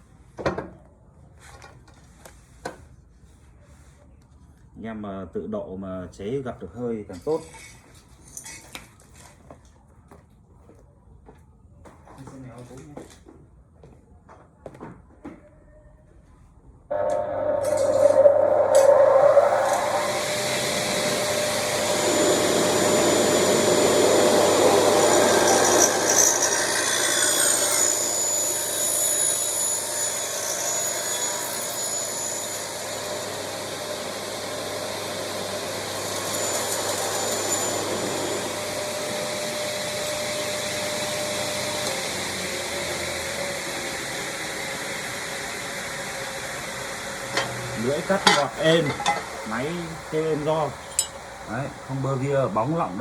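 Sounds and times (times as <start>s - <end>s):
cut-off saw cutting aluminium: 16.9s - 53.0s.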